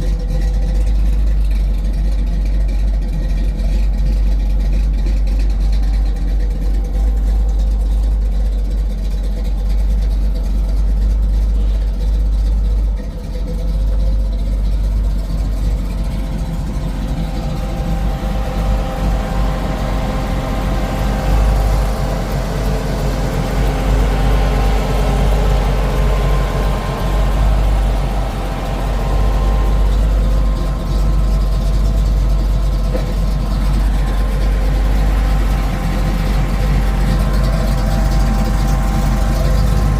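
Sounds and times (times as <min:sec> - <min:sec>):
car engine deep rumble: 0:00.0 - 0:39.9.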